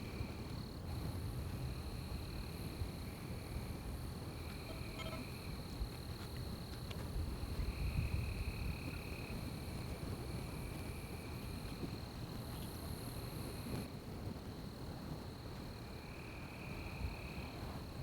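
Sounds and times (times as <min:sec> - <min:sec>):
insects high continuous drone: 0:00.0 - 0:18.0
lower insect trill: 0:01.6 - 0:05.7.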